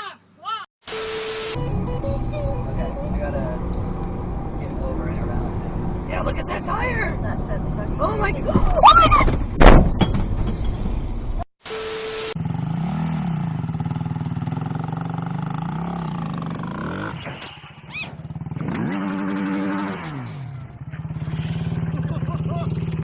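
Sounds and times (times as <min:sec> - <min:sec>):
hiss with steady tone: 0:00.9 - 0:01.6
vehicle engine revving: 0:01.6 - 0:08.5, 0:12.4 - 0:17.3, 0:18.1 - 0:23.0.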